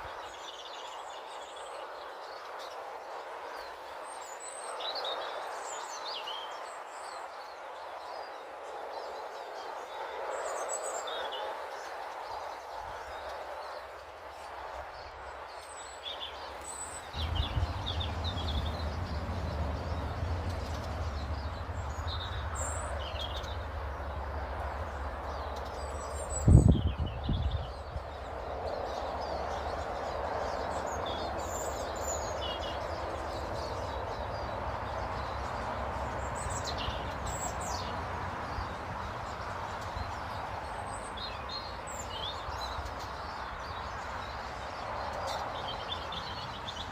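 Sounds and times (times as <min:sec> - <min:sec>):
small birds chirping: 0:00.0 - 0:46.9
outdoor background hum: 0:09.5 - 0:46.9
low steady rumble: 0:17.1 - 0:27.5.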